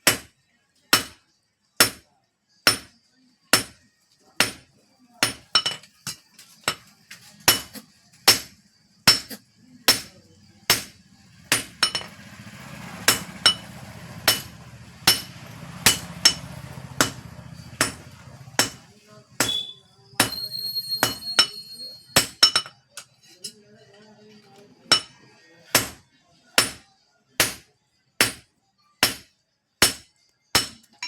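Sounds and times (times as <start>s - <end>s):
hammer striking anvil: 0.0s - 0.3s, 0.9s - 1.2s, 1.8s - 2.0s, 2.7s - 3.8s, 4.4s - 12.2s, 13.0s - 22.7s, 24.9s - 26.0s, 26.6s - 26.8s, 27.4s - 31.0s
high ringing tone: 19.4s - 22.4s.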